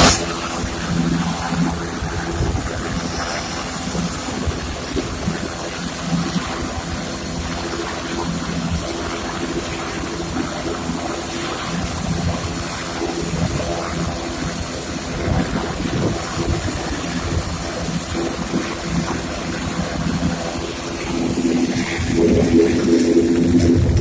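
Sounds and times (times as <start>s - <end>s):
helicopter engine and rotor drone: 0.0s - 24.0s.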